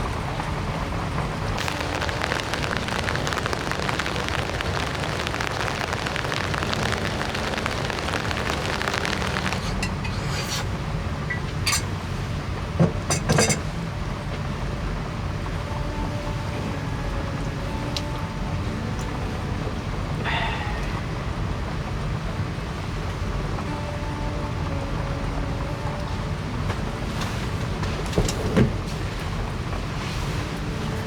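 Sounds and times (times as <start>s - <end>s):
low rumble: 0.0s - 12.8s
heavy rain falling: 0.0s - 31.0s.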